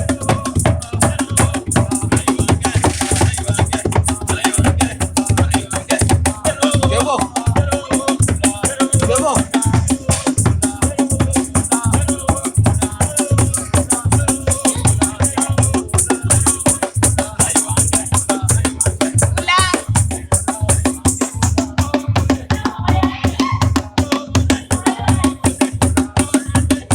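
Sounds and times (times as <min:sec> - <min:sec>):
shaker rattling: 0:00.0 - 0:04.2, 0:09.0 - 0:19.9
low drum beat: 0:00.0 - 0:26.9
voices singing: 0:00.0 - 0:26.9.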